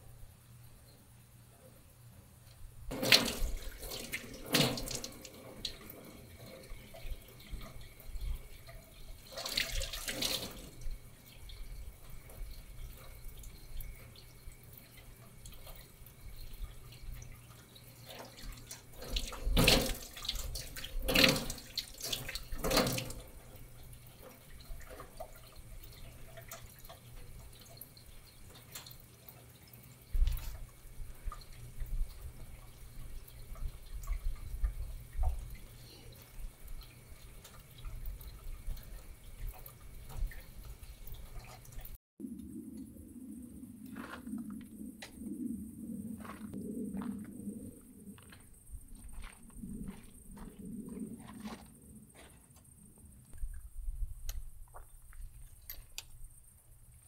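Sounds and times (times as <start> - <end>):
water dripping: 2.5 - 57.0
water running from a tap: 2.9 - 42.0.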